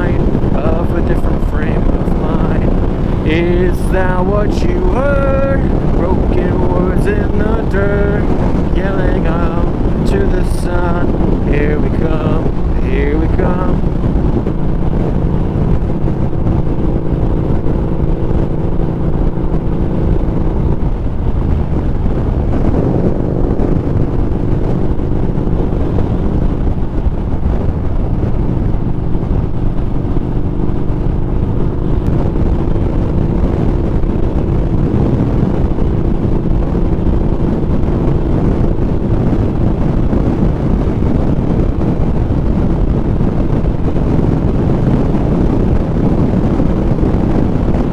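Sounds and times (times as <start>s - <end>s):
motorcycle engine running: 0.0s - 47.9s
wind rumble on microphone: 0.0s - 47.9s.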